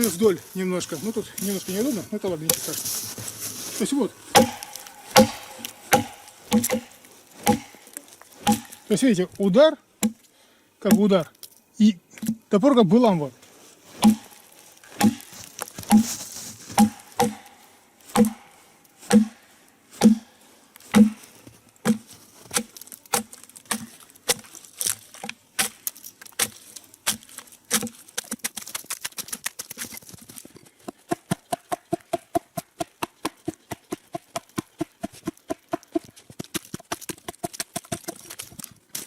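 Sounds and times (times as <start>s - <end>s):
axe chopping into a log: 4.3s - 8.9s, 10.0s - 10.2s, 10.8s - 11.1s, 14.0s - 16.1s, 16.8s - 19.4s, 20.0s - 20.3s, 20.9s - 28.6s.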